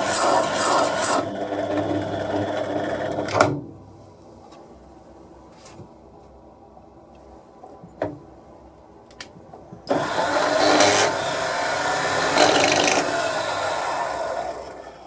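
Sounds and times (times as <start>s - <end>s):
power tool motor running: 9.9s - 14.9s.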